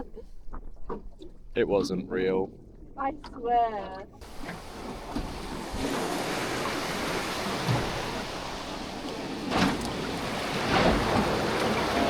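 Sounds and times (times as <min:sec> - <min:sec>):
wind: 0:00.0 - 0:12.0
sea waves washing: 0:04.2 - 0:12.0
water rushing: 0:04.2 - 0:12.0.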